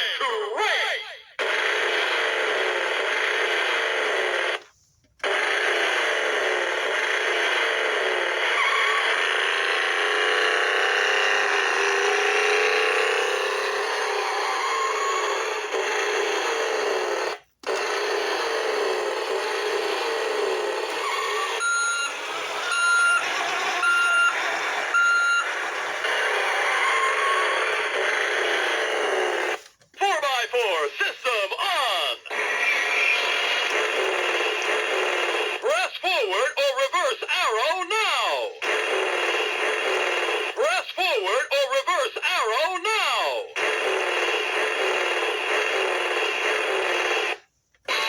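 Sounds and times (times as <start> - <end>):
toy engine revving effects: 0.0 - 4.6, 5.2 - 29.8, 30.4 - 48.0
short electronic beeps: 21.6 - 25.5.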